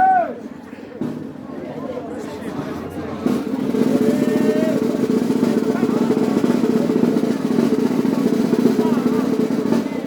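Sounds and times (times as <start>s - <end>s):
snare drum roll: 3.2s - 10.0s.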